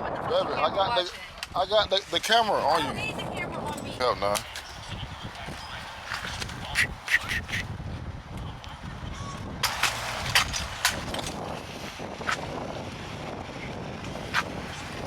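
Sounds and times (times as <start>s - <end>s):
wind buffeting microphone: 0.0s - 15.0s
sharp squawk-like sounds: 6.7s - 7.7s.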